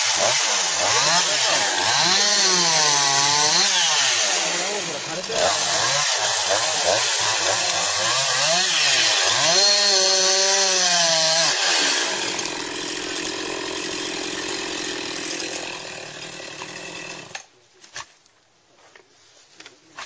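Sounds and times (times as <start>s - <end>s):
chainsaw engine revving: 0.0s - 17.5s.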